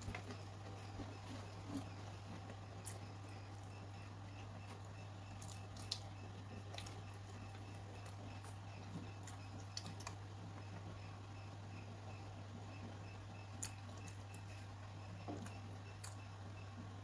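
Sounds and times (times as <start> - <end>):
person chewing: 0.0 - 10.2, 13.6 - 14.7.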